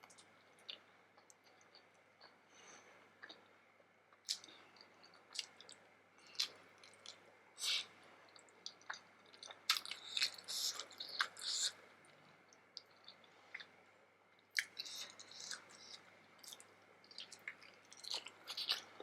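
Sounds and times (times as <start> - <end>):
chewing with mouth clicks: 4.2 - 11.8, 12.5 - 13.8, 14.5 - 19.0.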